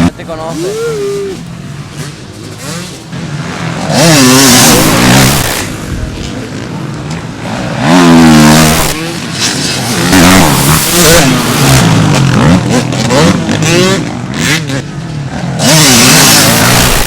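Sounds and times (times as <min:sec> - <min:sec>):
drone of other bikes: 0:00.0 - 0:17.0
motocross bikes revving past: 0:00.0 - 0:17.0.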